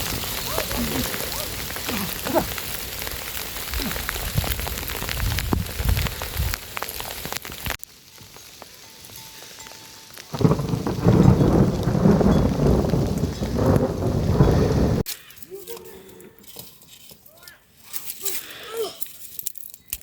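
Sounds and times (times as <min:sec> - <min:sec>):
rain pattering on hard surfaces: 0:00.0 - 0:15.1.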